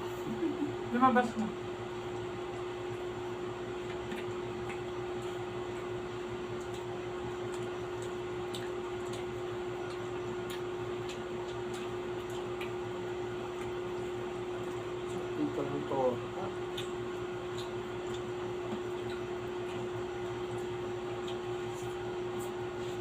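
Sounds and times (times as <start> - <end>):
steady hum: 0.0 - 23.0
utensil clicks while eating: 3.8 - 15.6, 16.4 - 22.6.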